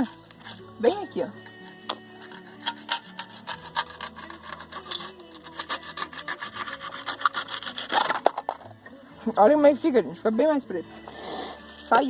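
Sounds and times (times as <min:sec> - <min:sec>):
knife sawing through plastic: 0:02.2 - 0:08.4.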